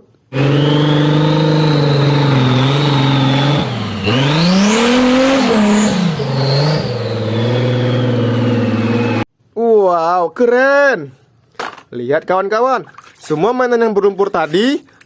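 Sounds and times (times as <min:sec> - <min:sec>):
car engine revving: 0:00.3 - 0:09.3
high whine: 0:00.3 - 0:09.3.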